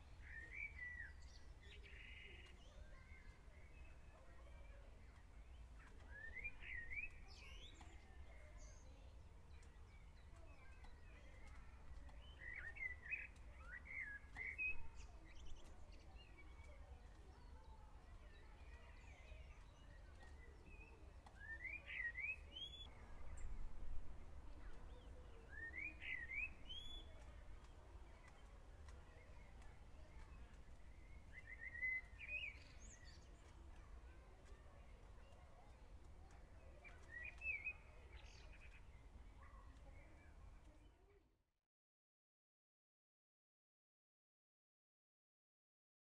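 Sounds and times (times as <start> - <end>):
small bird chirping: 24.6 - 39.1.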